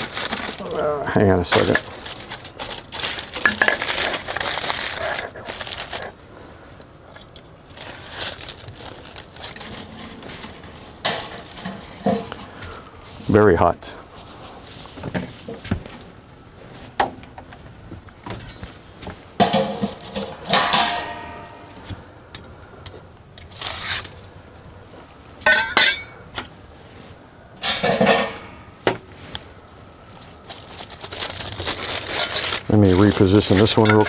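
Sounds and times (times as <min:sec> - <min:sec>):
metal clinking and scraping: 0:01.5 - 0:06.1, 0:07.1 - 0:12.8, 0:19.4 - 0:22.5, 0:25.4 - 0:26.3, 0:27.6 - 0:29.4, 0:31.2 - 0:34.0.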